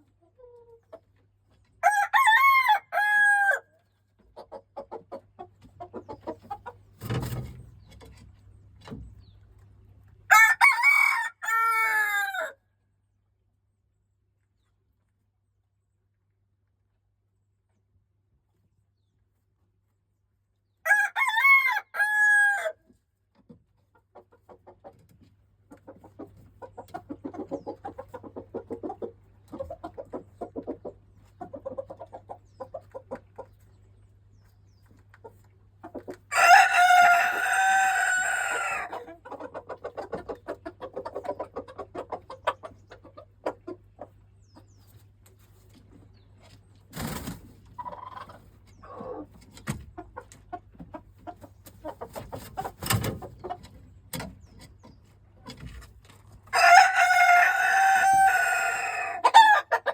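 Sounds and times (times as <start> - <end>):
rooster crowing: 1.8 - 3.7, 10.3 - 12.6, 20.9 - 22.8, 36.3 - 38.9, 56.6 - 59.7.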